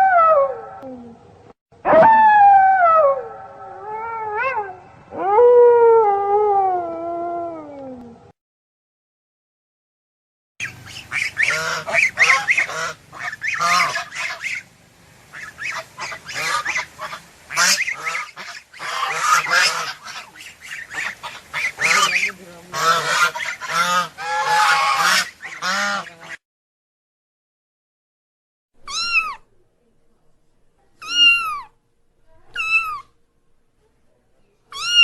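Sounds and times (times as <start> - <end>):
geese honking: 10.6 - 14.7, 15.3 - 26.4.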